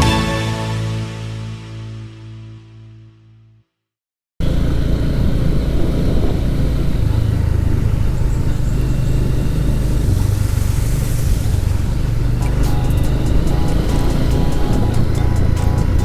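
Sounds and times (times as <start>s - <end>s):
motorcycle engine running: 4.4s - 16.0s.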